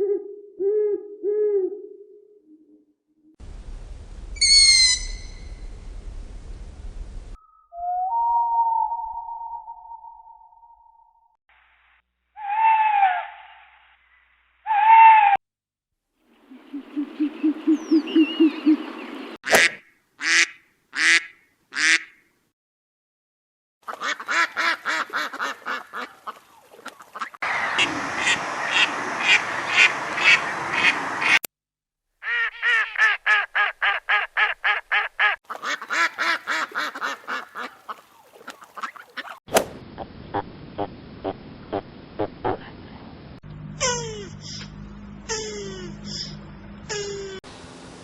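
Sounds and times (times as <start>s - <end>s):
ducks quacking: 23.9s - 31.4s, 32.2s - 39.4s.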